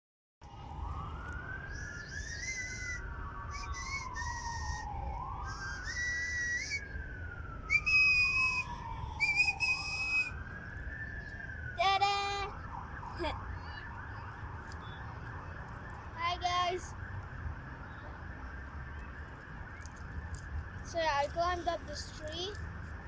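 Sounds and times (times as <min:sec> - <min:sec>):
siren wailing: 0:00.4 - 0:23.0
short high whistled notes: 0:02.1 - 0:04.9.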